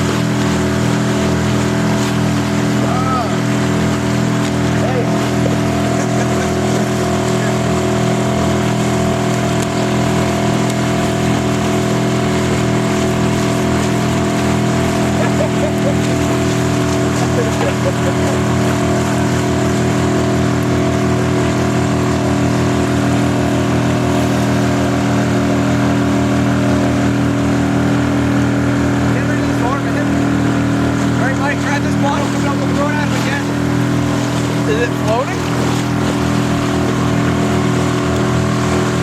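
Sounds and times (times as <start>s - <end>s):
motorboat engine droning: 0.0s - 39.0s.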